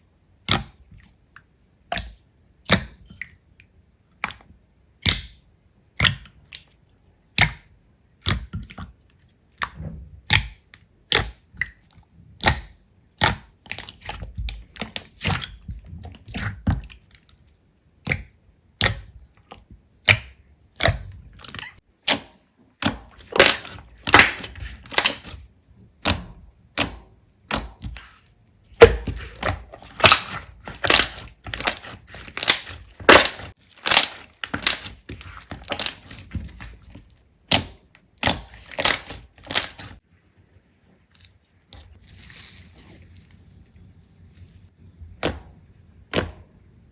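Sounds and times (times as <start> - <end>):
slime popping and crackling: 20.0 - 25.4, 28.8 - 40.0.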